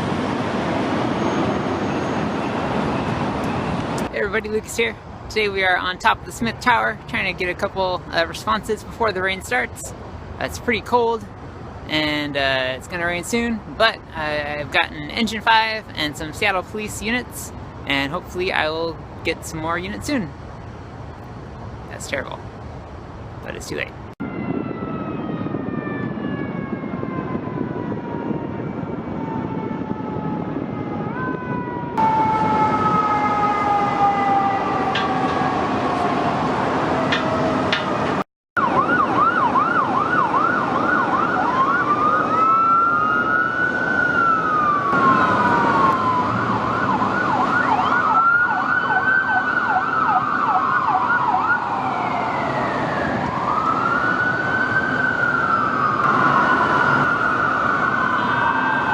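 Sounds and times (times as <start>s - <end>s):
ambulance electronic siren: 0.0s - 3.9s, 24.2s - 58.9s
fire engine siren falling tone: 0.0s - 4.1s, 24.2s - 58.9s.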